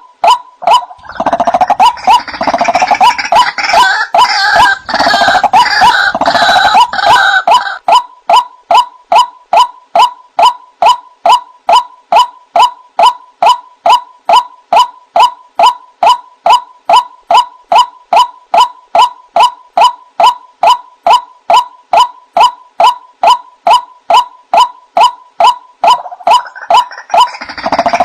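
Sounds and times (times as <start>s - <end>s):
waterhen clucking call: 0.3s - 28.0s.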